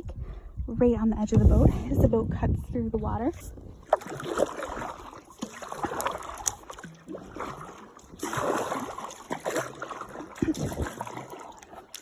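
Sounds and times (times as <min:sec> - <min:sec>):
water washing along hull: 0:01.3 - 0:12.0
kayak paddle splashing: 0:03.0 - 0:12.0.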